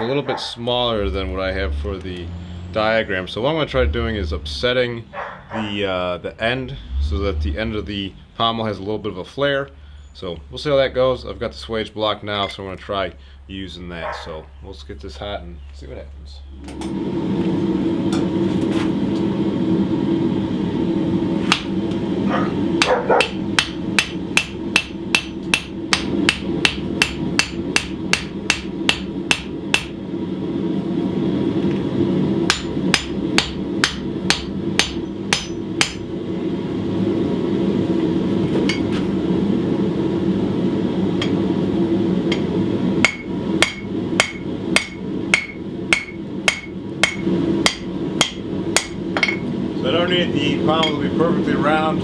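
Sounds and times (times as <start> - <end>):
steady low rush: 0.6 - 9.3
hammer striking steel on anvil: 21.5 - 21.8, 22.8 - 30.0, 32.5 - 36.1, 38.6 - 38.9, 41.2 - 41.5, 42.3 - 49.5, 50.8 - 51.1.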